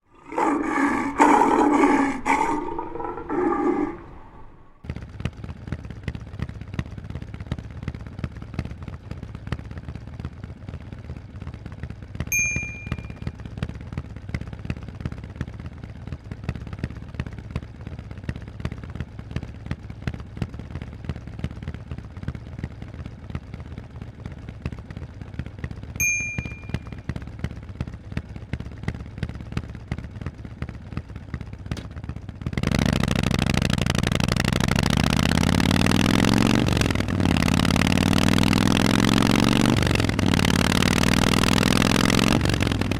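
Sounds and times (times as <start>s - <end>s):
motorcycle engine idling: 4.6s - 42.9s
short high-pitched dings: 12.3s - 13.2s, 26.0s - 27.0s
motorcycle engine revving: 31.7s - 42.9s.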